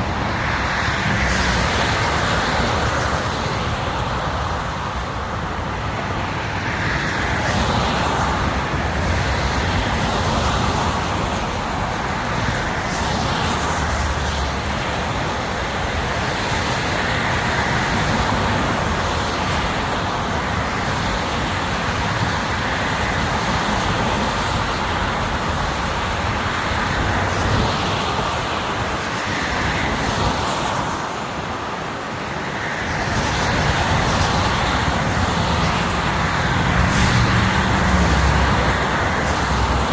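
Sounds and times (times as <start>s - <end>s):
highway traffic noise: 0.0s - 39.9s
vehicles passing by: 0.0s - 39.9s.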